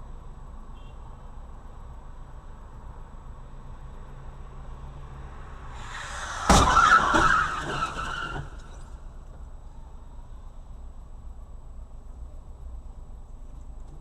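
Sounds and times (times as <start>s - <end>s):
road noise: 0.0s - 14.0s
tyres skidding: 3.8s - 9.7s
loud car crash impact: 5.4s - 9.3s
metal crunching and scraping: 5.8s - 9.0s.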